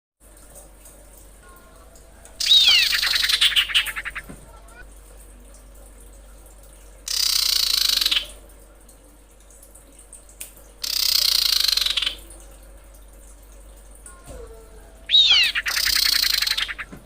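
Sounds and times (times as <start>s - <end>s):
bird giving harsh hissing calls: 2.4s - 4.2s, 7.1s - 8.3s, 10.8s - 12.2s, 15.1s - 16.9s.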